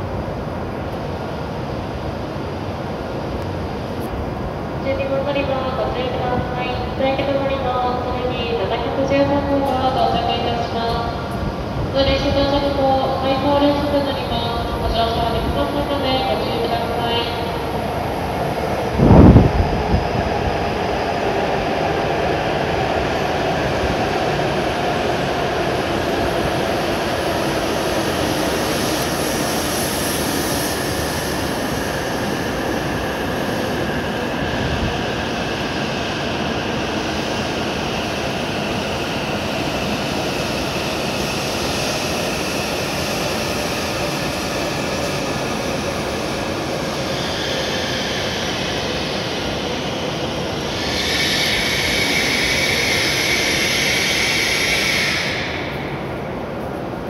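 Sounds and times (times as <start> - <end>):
train pulling in and slowing: 0.0 - 57.0.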